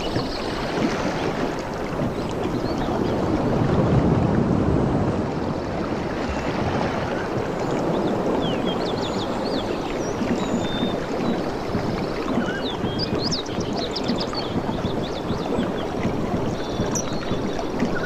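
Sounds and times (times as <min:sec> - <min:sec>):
ocean waves washing in: 0:00.0 - 0:18.0
small birds chirping: 0:07.6 - 0:18.0.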